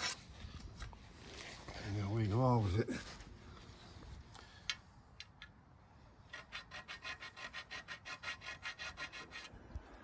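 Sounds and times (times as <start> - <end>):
tool rasping on metal pole: 6.3 - 9.6.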